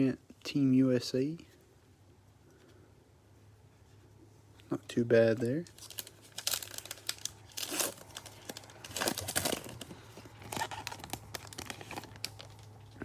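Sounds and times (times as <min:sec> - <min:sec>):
foil wrapper crinkling and tearing: 0:05.6 - 0:13.0.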